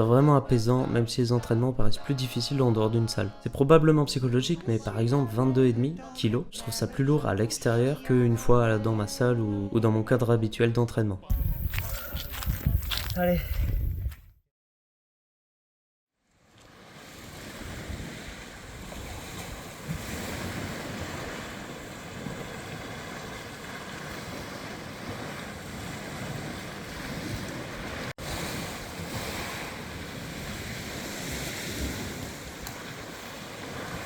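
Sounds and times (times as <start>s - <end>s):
wind buffeting microphone: 11.3s - 14.3s
flowing river water: 16.5s - 34.0s.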